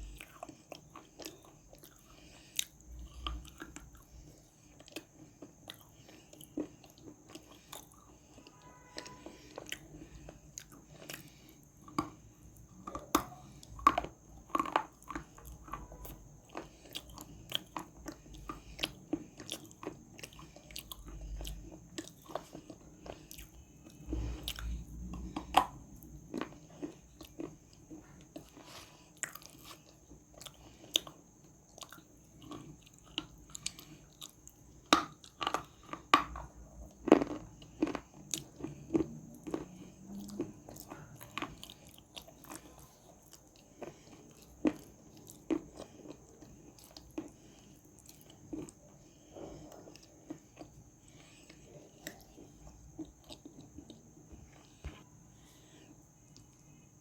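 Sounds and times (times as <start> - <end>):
clay crunching while chewed: 0.0 - 56.8.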